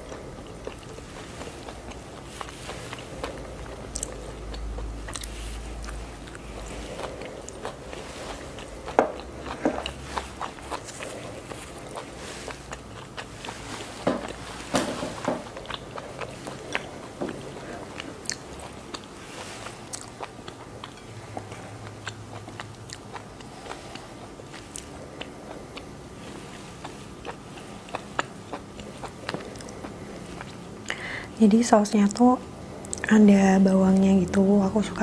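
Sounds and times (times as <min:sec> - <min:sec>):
chewing mouth sounds: 0:00.0 - 0:31.2, 0:32.8 - 0:33.2.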